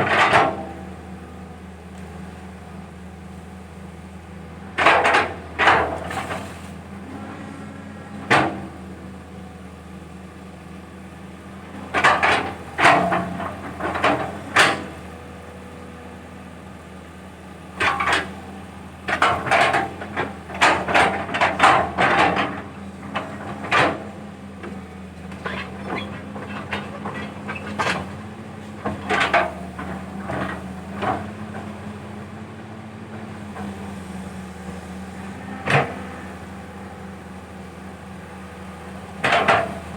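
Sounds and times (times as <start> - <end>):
excavator diesel engine running: 0.0 - 39.9
machine knocks and clanks: 19.0 - 31.7, 38.9 - 39.9.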